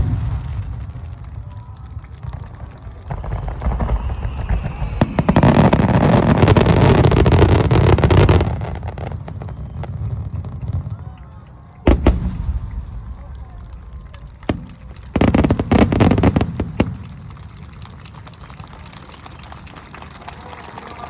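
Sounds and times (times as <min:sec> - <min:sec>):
fireworks sharp bangs: 0:00.0 - 0:01.5, 0:11.9 - 0:17.2
fireworks crackling barrage: 0:00.0 - 0:21.0.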